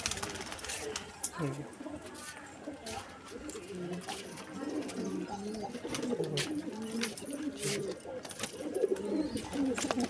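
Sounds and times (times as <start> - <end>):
pigeons cooing: 8.6 - 10.0.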